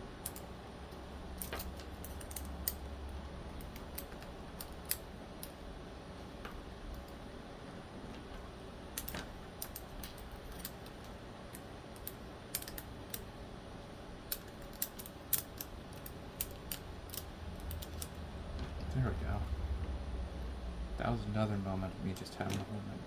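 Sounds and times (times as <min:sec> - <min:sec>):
metal clicks and taps of knife parts: 0:00.2 - 0:00.4, 0:01.4 - 0:02.8, 0:12.0 - 0:13.3, 0:14.3 - 0:18.2.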